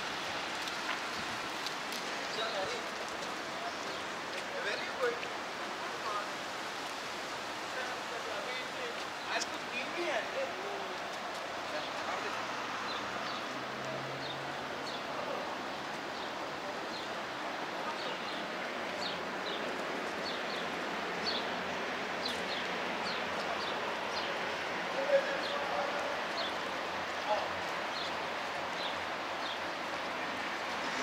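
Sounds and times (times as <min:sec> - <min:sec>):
outdoor background noise: 0:00.0 - 0:31.0
small birds chirping: 0:02.2 - 0:05.1, 0:17.8 - 0:21.6, 0:22.2 - 0:24.4, 0:25.1 - 0:31.0
faint distant voices: 0:07.5 - 0:31.0.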